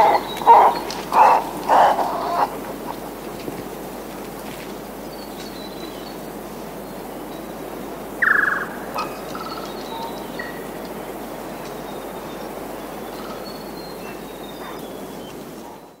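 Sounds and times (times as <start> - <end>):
steady background hiss: 0.0 - 16.0
rapidly pulsing bird call: 8.2 - 10.4.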